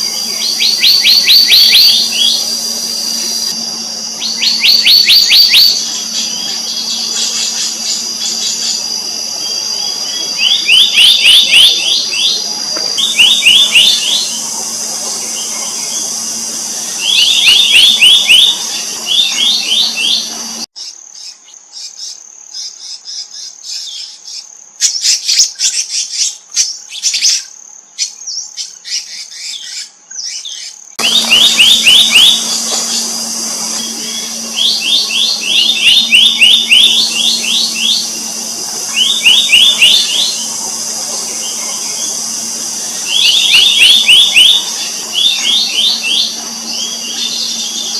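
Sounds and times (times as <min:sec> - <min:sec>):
bird calling in ringing notes: 0:00.0 - 0:20.7, 0:31.0 - 0:47.9
low hum: 0:00.0 - 0:20.7, 0:31.0 - 0:47.9
sharp high chirps: 0:00.0 - 0:20.7, 0:31.0 - 0:47.9
insect drone: 0:00.0 - 0:29.7, 0:30.5 - 0:47.9.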